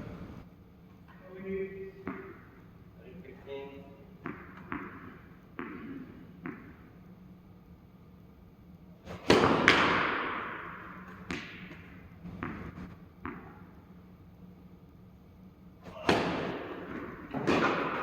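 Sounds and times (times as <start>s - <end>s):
tennis balls struck by rackets: 2.0s - 2.5s, 4.2s - 6.9s, 9.1s - 13.8s, 15.8s - 18.0s.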